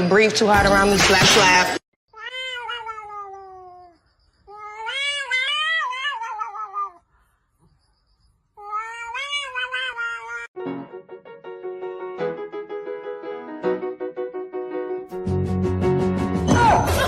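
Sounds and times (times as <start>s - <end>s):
cat meowing: 2.1s - 7.1s, 8.6s - 10.6s.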